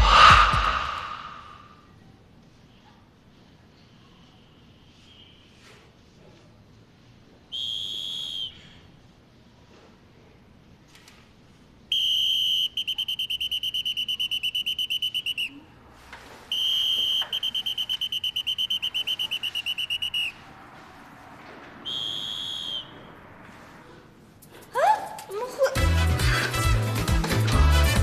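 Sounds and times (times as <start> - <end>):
pea whistle blasts and trills: 7.5 - 8.7, 11.9 - 15.6, 16.5 - 20.4, 21.8 - 23.1.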